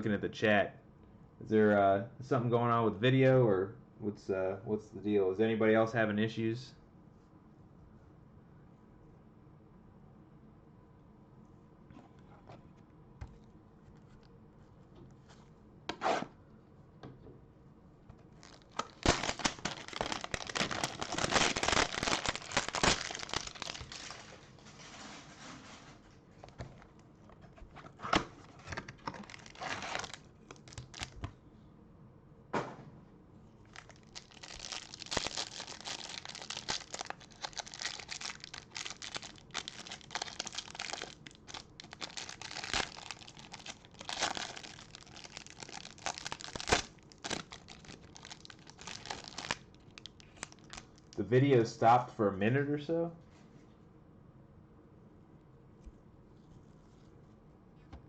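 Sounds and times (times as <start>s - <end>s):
wrappers tearing and crinkling: 18.4s - 24.4s, 29.0s - 31.3s, 33.7s - 51.2s.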